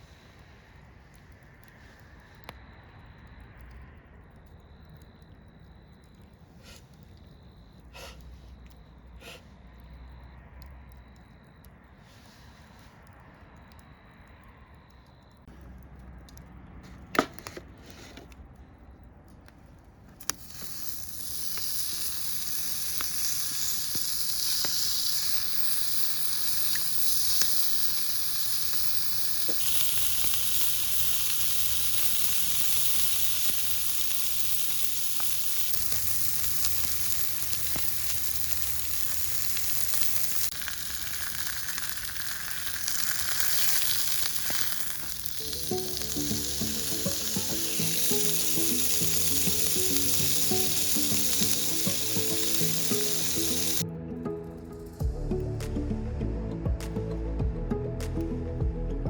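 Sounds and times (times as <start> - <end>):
meat sizzling on a griddle: 20.2 - 53.8.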